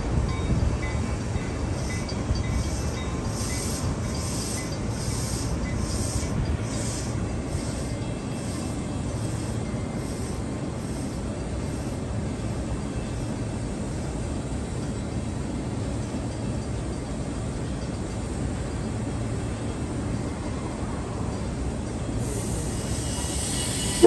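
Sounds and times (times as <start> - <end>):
train rumble: 0.0 - 24.0
high squeals: 22.2 - 24.0.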